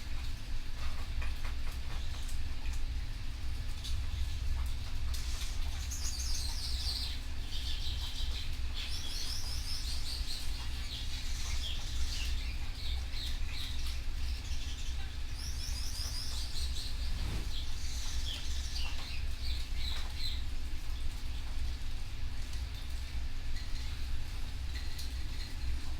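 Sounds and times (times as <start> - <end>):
steady low hum: 14.2 - 19.9.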